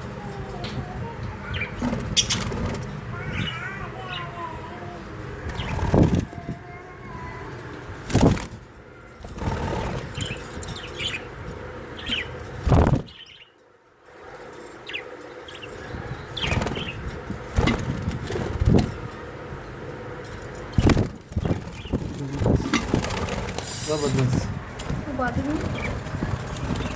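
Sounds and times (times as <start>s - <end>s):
budgerigars chirping: 1.4s - 2.6s, 9.4s - 13.5s
bird wings flapping: 5.4s - 6.5s, 8.0s - 10.7s, 12.5s - 13.1s, 16.3s - 19.2s, 20.4s - 26.9s.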